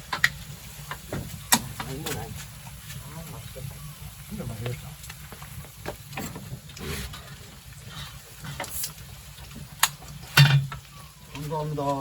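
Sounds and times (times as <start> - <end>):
tableware clatter: 10.4 - 10.8.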